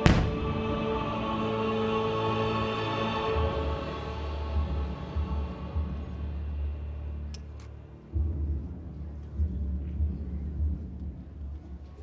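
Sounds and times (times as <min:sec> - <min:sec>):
fireworks booming: 0:00.0 - 0:01.1.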